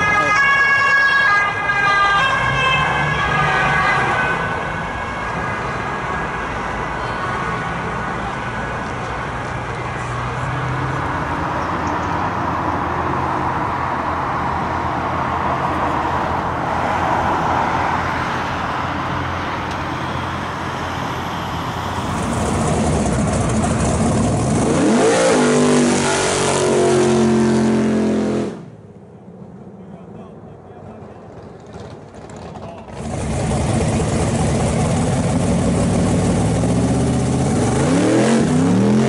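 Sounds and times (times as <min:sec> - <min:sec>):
road traffic rumble: 0:00.0 - 0:39.0
car engine revving hard: 0:21.2 - 0:28.7, 0:32.9 - 0:39.0.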